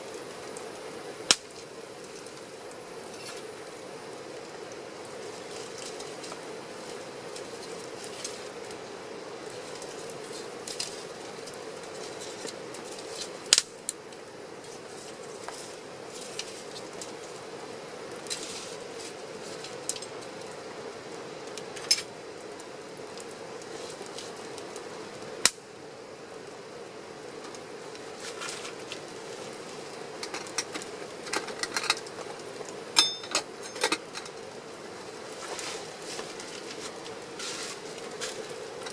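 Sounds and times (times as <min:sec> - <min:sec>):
campfire crackling and hissing: 0:00.0 - 0:38.9
sharp fire pops: 0:00.3 - 0:08.9, 0:09.5 - 0:17.4, 0:21.5 - 0:25.7.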